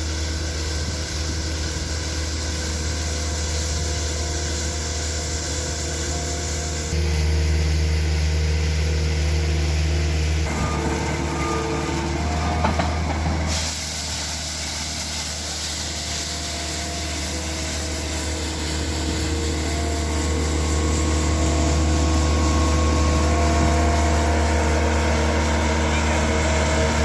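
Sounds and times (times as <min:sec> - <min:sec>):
road-repair machinery engines humming: 0:00.0 - 0:27.0.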